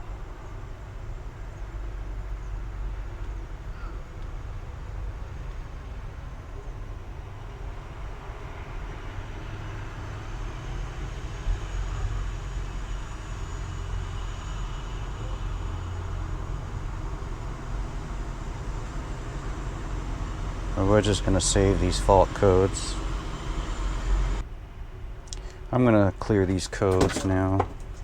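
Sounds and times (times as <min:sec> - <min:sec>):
workshop rumble and hiss: 0:00.0 - 0:28.0
short knock: 0:26.9 - 0:27.8.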